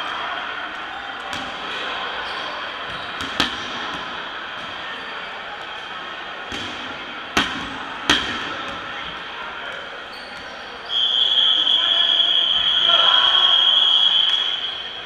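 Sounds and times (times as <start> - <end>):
dodgeballs smacking: 1.2 - 1.9, 2.8 - 5.0, 6.4 - 10.5.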